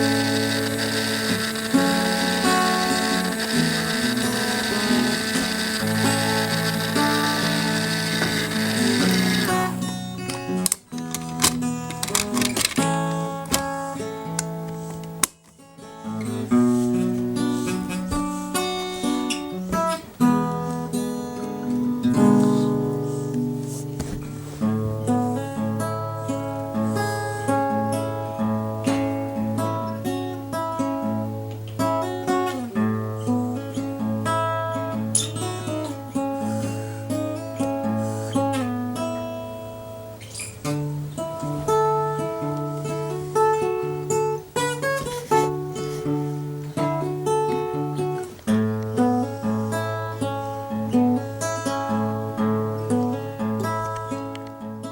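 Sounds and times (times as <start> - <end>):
acoustic guitar picking: 0.0 - 12.4.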